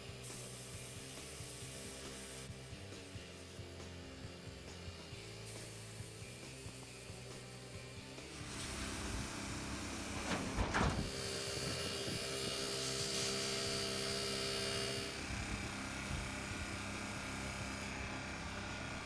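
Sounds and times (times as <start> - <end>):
airbrush hissing: 0.2 - 3.8, 5.2 - 10.3.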